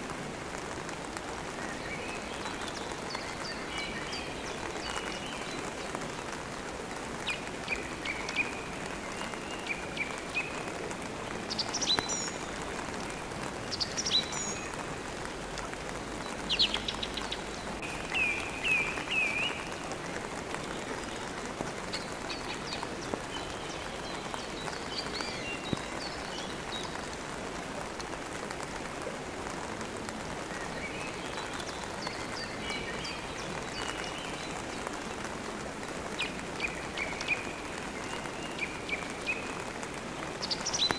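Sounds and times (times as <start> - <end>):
steady rain: 0.0 - 40.9
birds chirping: 16.2 - 27.2.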